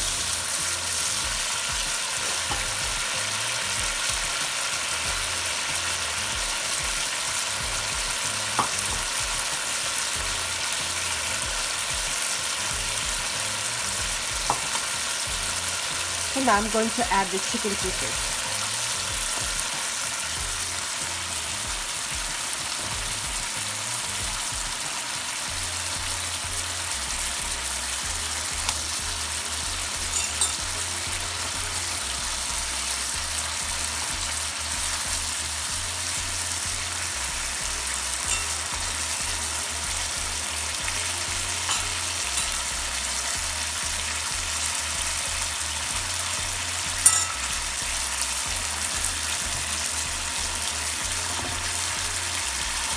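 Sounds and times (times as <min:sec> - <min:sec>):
pan sizzling: 0:00.0 - 0:52.9
utensil clinking against pan: 0:02.2 - 0:03.0, 0:08.6 - 0:09.2, 0:30.0 - 0:30.9, 0:38.2 - 0:39.0, 0:41.6 - 0:42.8, 0:46.9 - 0:47.7.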